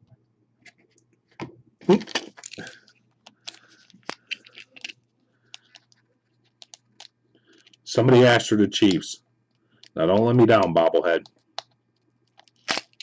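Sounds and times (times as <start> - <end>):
packaging crinkling: 1.8 - 7.9, 12.2 - 13.0.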